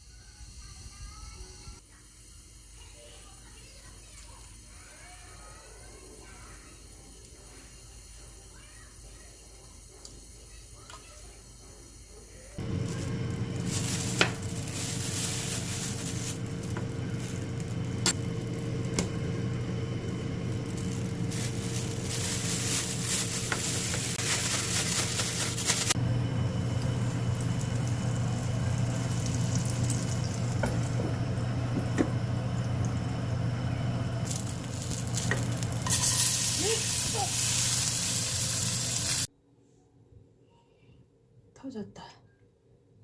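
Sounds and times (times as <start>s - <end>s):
food sizzling in frying pan: 12.6s - 39.3s
steady hum: 12.6s - 39.3s.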